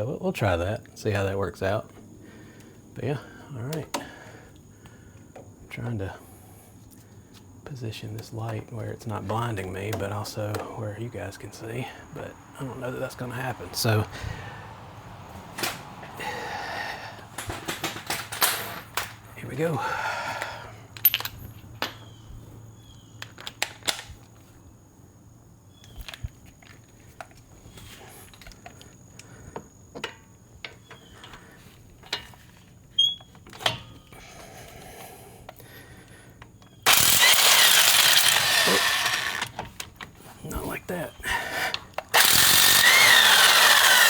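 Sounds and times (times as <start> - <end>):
power tool running: 36.8 - 39.6, 42.1 - 44.0.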